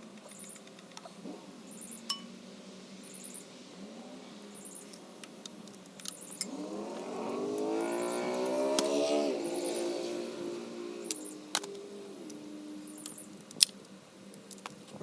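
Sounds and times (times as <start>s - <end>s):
motor whine rising in pitch: 6.2s - 13.4s.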